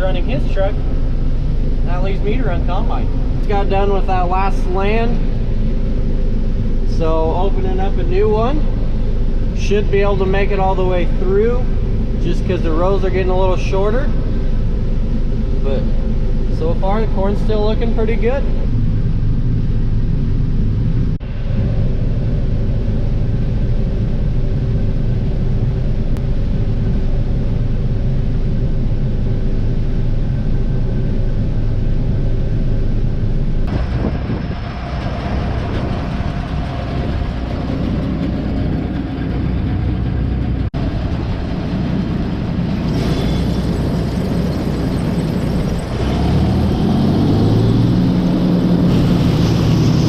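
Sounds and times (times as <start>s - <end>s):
combine harvester rumbling: 0.0s - 50.0s.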